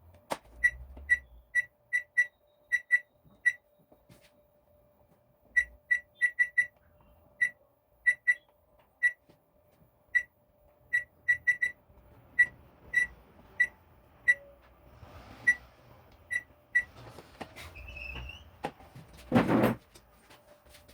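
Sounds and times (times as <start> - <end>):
microwave keypad beeps: 0.6 - 3.8, 5.6 - 6.8, 7.4 - 9.2, 10.9 - 11.8, 12.4 - 14.5, 16.3 - 16.9.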